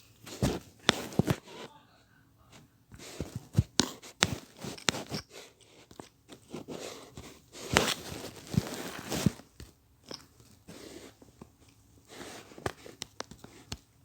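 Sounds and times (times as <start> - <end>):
handling noise clicks and rustles: 0.0 - 1.4, 3.0 - 14.0.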